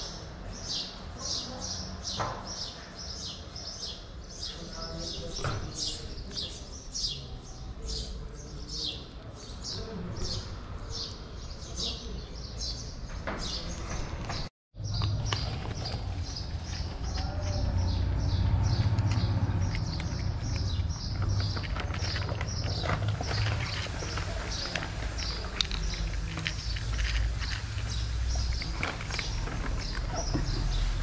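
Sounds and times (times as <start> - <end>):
small birds chirping: 0.0 - 31.0
cat chewing dry kibble: 15.3 - 31.0.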